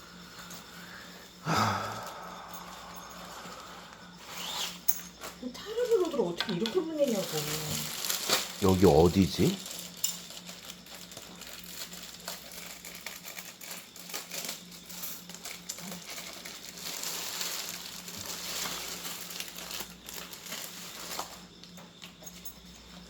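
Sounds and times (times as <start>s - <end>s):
packaging crinkling and rustling: 4.4s - 22.8s.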